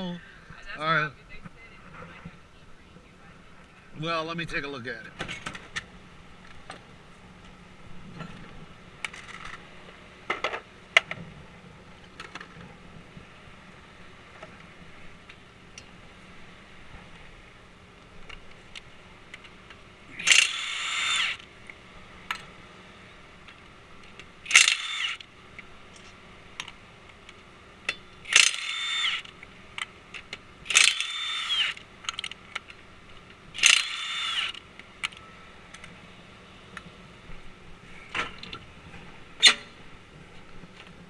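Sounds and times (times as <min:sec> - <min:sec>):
impact wrench whining and hammering: 0:20.1 - 0:21.5, 0:24.2 - 0:25.3, 0:26.6 - 0:35.2.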